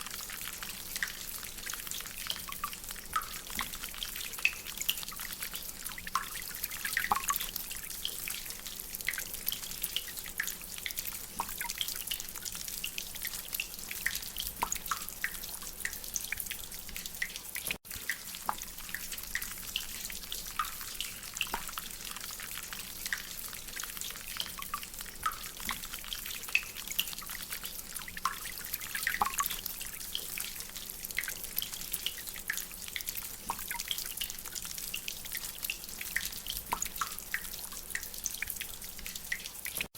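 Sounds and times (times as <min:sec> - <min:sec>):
water drops plinking from drainpipe: 0:02.2 - 0:05.2, 0:05.8 - 0:08.2, 0:14.0 - 0:19.9, 0:21.4 - 0:21.9, 0:28.2 - 0:29.7, 0:31.2 - 0:34.3, 0:34.9 - 0:39.9.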